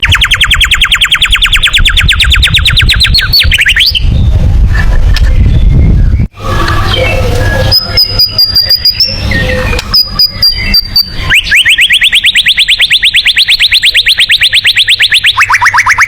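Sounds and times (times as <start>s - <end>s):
bird singing whistles and clicks: 0.0s - 4.2s, 7.4s - 16.0s.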